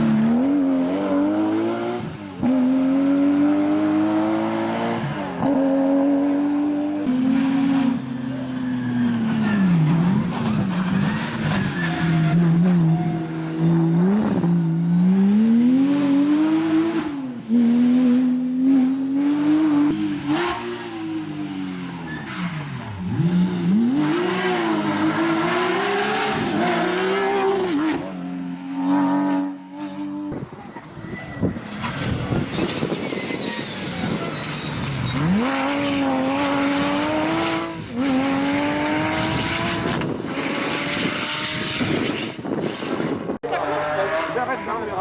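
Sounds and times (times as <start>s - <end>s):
race car engine revving: 32.2s - 45.0s.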